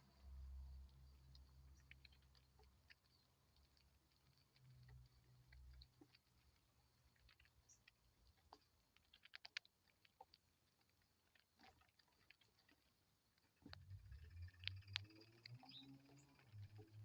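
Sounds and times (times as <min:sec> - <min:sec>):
faint sharp clicks: 0:13.4 - 0:17.0.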